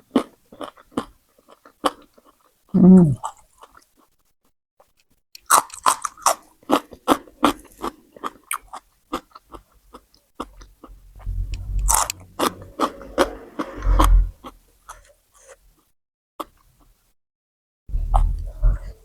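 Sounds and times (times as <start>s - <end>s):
chewing crunchy raw vegetables: 0.0s - 4.2s, 4.8s - 15.6s.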